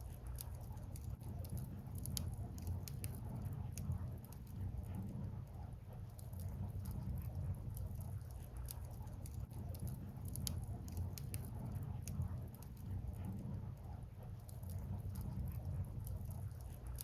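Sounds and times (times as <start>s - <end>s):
bonfire crackling and popping: 0.1s - 5.1s, 6.1s - 13.4s.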